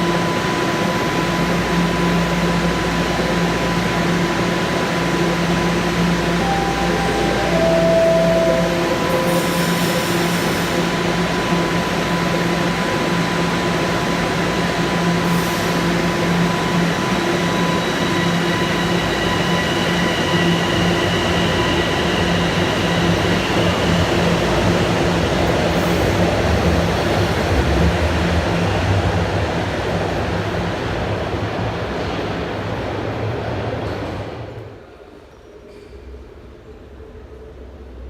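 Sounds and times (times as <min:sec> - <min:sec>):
subway train running: 0:00.0 - 0:38.0
high whine: 0:06.0 - 0:11.0.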